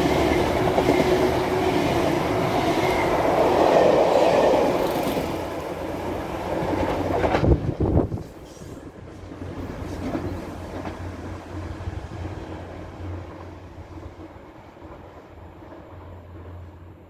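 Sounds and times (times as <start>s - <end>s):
diesel train rumbling past: 0.0s - 17.0s.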